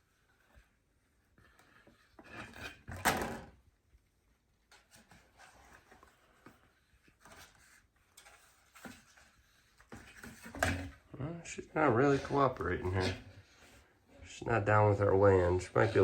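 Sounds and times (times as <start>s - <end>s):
rustling scrape with knocks: 0.0s - 3.4s, 4.7s - 16.0s
faint clicks and rustles: 3.6s - 16.0s.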